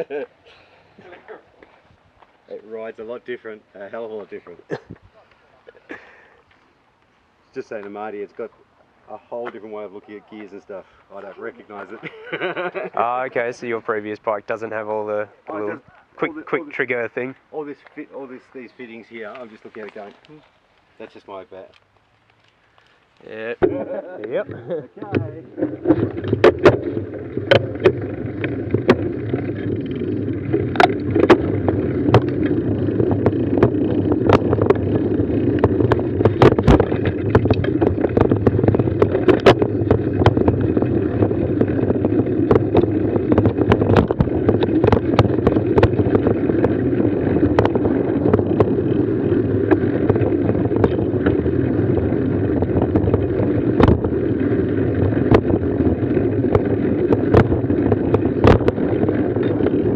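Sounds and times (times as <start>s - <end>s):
mountain bike rumbling on trail: 0.0s - 5.1s, 9.3s - 59.9s
bike knocking and rattling: 17.8s - 59.9s.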